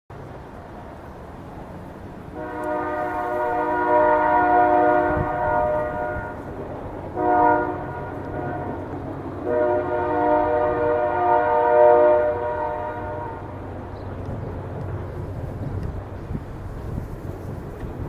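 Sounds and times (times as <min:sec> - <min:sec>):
horn blasting a chord: 0:02.4 - 0:06.5, 0:07.2 - 0:13.6.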